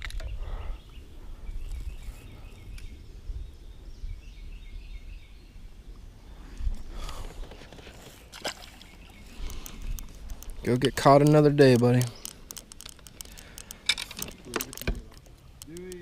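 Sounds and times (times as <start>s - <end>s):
low wind rumble: 0.0s - 7.7s
sharp clicks: 9.4s - 16.0s.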